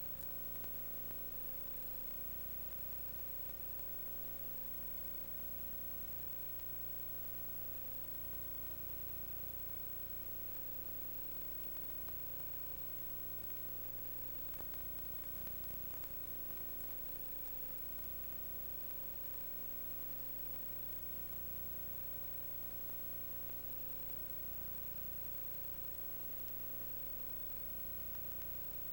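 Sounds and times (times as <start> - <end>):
electrical hum and hiss: 0.0 - 28.9
faint clicks: 0.0 - 28.9.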